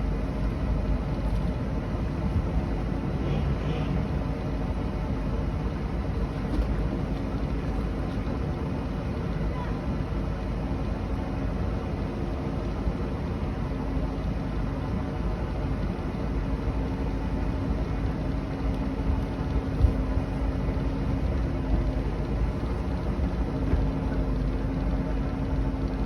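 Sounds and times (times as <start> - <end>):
motorboat engine running: 11.9 - 26.0.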